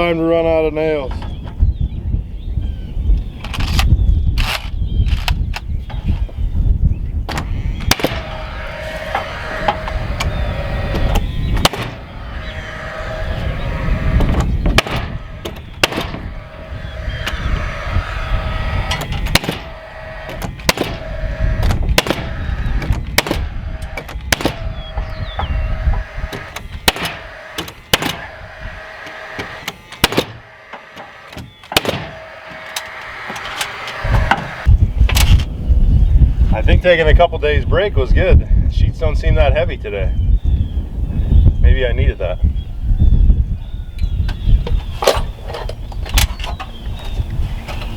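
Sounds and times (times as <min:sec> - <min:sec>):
nail gun firing: 0:15.8 - 0:16.2, 0:19.3 - 0:19.7, 0:20.4 - 0:21.0, 0:21.6 - 0:22.4, 0:23.2 - 0:24.7, 0:26.3 - 0:28.3, 0:29.0 - 0:34.5.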